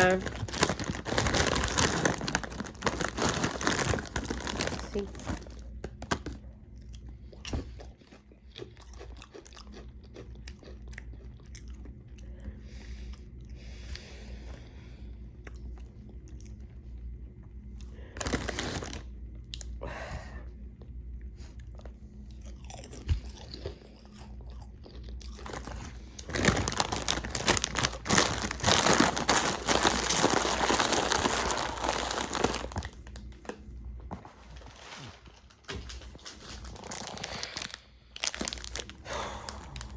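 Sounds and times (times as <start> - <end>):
person chewing crunchy chips: 0.0 - 14.0, 17.8 - 19.7, 21.5 - 33.7, 34.8 - 39.9.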